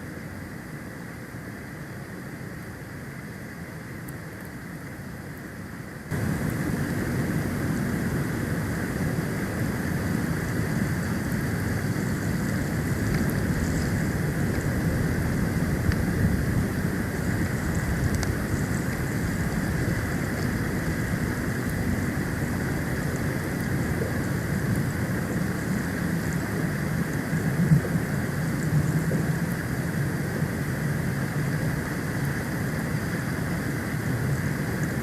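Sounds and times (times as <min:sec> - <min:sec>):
wind buffeting microphone: 0:06.1 - 0:29.5.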